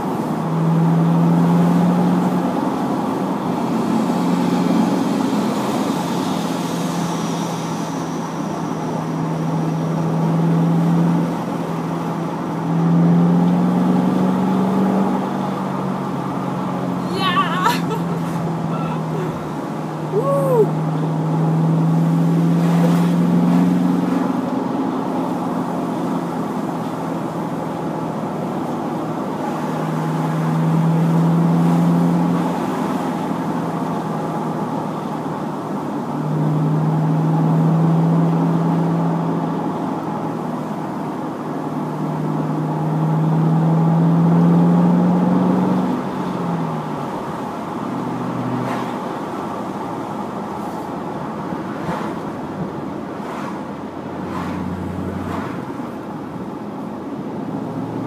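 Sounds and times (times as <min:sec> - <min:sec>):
road noise: 0:00.0 - 0:58.0
car engine revving: 0:42.2 - 0:50.0, 0:51.7 - 0:56.4.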